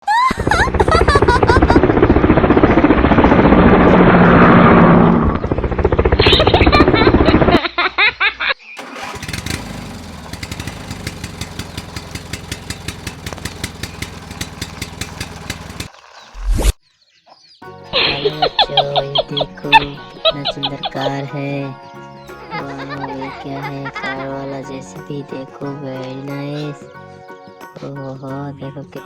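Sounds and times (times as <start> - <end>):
loud engine running: 0.6 - 6.1, 8.8 - 16.0
mechanical sound with rapid ticking: 10.3 - 16.4.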